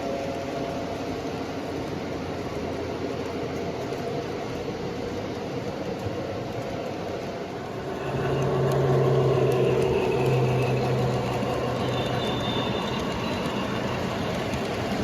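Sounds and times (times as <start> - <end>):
model train wheels rumbling: 0.0 - 15.0
motor hum: 7.7 - 15.0.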